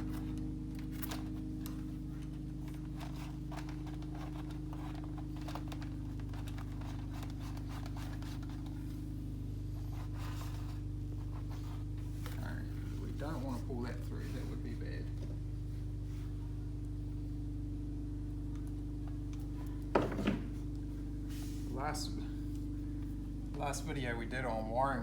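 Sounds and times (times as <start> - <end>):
wire scraping and rustling: 0.0 - 9.1
steady low hum: 0.0 - 25.0.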